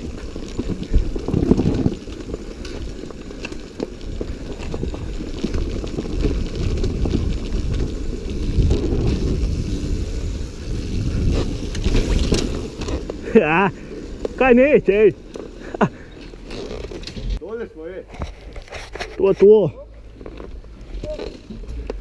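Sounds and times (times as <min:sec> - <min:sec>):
wind buffeting microphone: 0:00.0 - 0:14.5
dirt bike engine rumble: 0:00.0 - 0:17.4.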